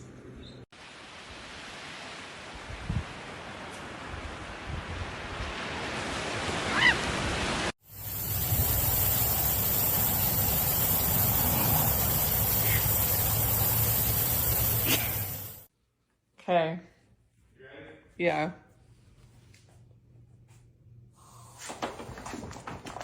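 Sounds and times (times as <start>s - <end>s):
loud hiss: 7.8s - 15.7s
steady rushing noise: 7.9s - 15.6s.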